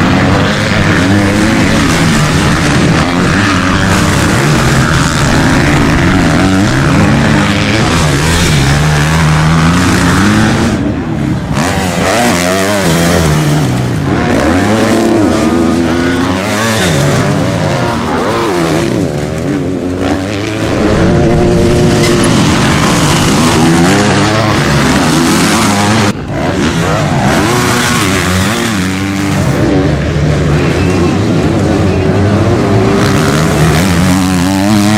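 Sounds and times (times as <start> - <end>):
motocross bikes revving: 0.0 - 34.9.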